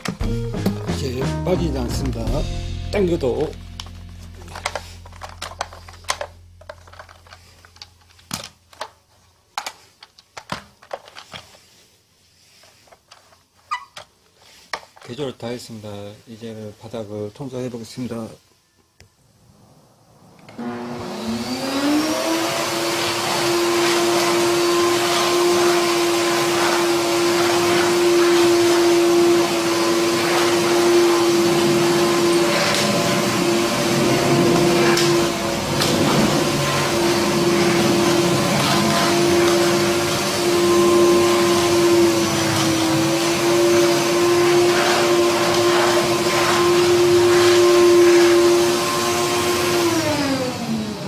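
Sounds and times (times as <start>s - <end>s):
low hum: 2.6s - 8.8s
vacuum cleaner motor whine: 3.4s - 8.9s, 20.2s - 51.0s
plastic clicks and knocks: 9.6s - 11.5s.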